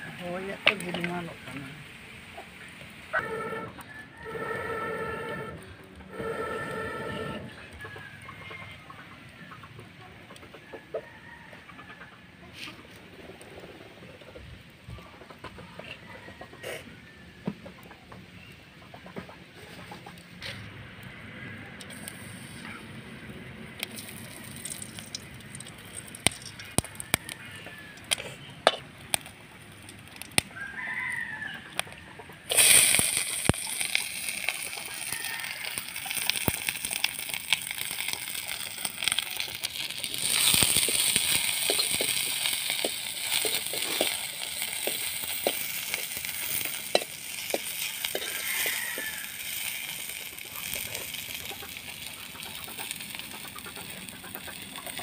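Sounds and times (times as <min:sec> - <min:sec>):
onions sizzling in hot oil: 0:00.0 - 0:03.2, 0:23.8 - 0:55.0
chickens clucking: 0:00.0 - 0:55.0
ladle stirring and tapping pan: 0:40.2 - 0:49.2.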